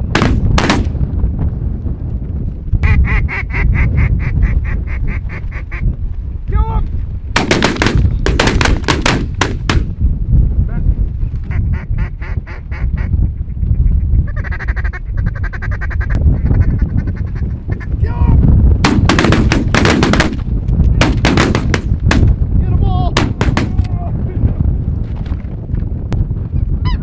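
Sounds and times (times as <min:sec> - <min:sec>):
ducks quacking: 0:14.3 - 0:17.8.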